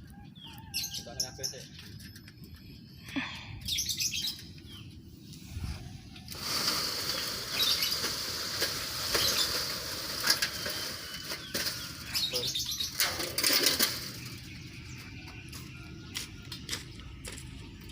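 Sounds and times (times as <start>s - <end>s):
birds chirping: 0.0s - 17.9s
birds flapping wings: 6.3s - 14.0s.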